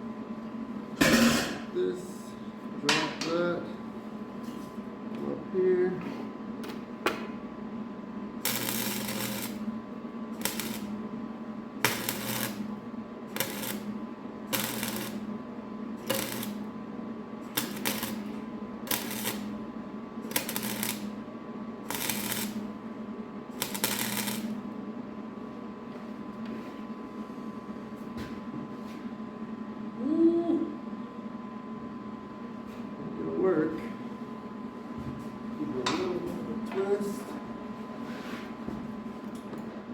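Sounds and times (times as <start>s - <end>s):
steady low hum: 0.0s - 39.9s
arc welder bursts: 8.4s - 11.1s, 11.8s - 16.7s, 17.4s - 19.6s, 20.2s - 21.2s, 21.8s - 22.8s, 23.5s - 24.6s.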